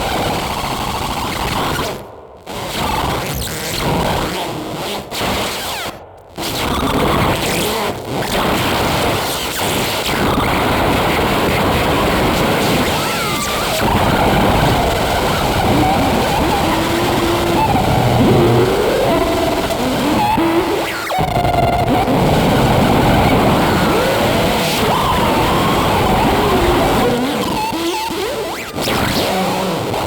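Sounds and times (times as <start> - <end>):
dense rough noise: 13.8 - 21.8.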